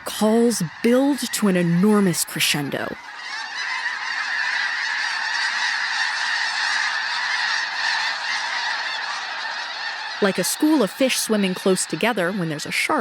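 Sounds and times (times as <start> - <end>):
flock of geese honking: 0.0 - 13.0.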